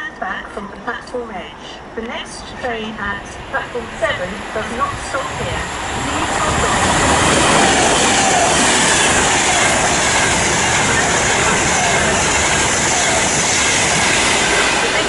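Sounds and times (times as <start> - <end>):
electric train passing at speed: 0.0 - 15.0.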